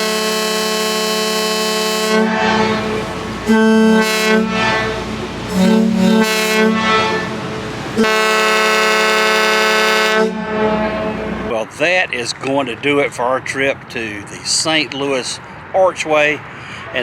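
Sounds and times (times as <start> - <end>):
loud horn blasts: 0.0 - 11.6.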